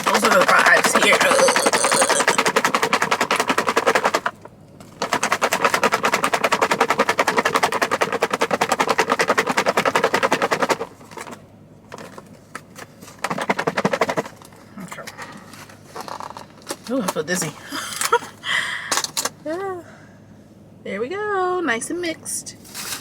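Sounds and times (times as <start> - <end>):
salad rattling in plastic container: 0.0 - 11.4, 13.0 - 14.5.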